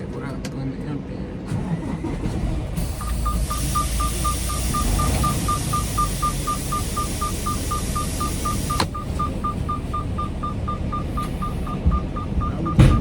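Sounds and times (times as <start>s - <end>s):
truck engine running: 1.7s - 13.0s
rapid beeping: 2.8s - 13.0s.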